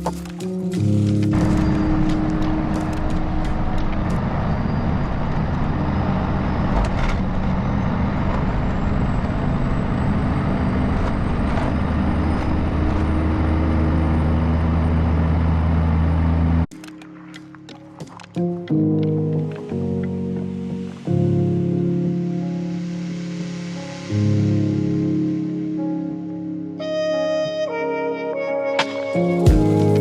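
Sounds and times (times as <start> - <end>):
heavy truck engine drone: 0.0 - 16.7
road noise: 0.0 - 18.6.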